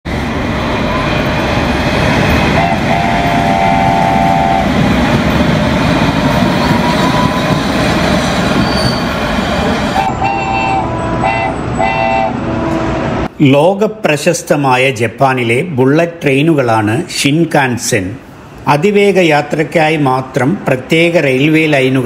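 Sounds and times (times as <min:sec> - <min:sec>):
bullet train rushing: 0:00.0 - 0:13.4
train horn: 0:02.6 - 0:04.8, 0:10.0 - 0:13.1.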